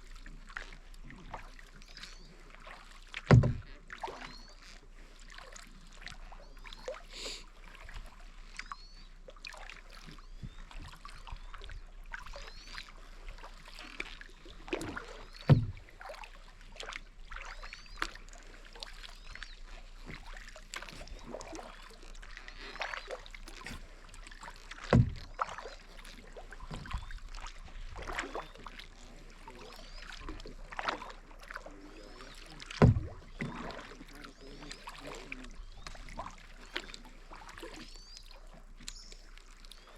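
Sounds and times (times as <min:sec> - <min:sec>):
paddle strokes splashing water: 0:00.0 - 0:39.9
deep thumps: 0:03.3 - 0:03.7, 0:15.5 - 0:15.8, 0:24.9 - 0:25.4, 0:32.8 - 0:33.3.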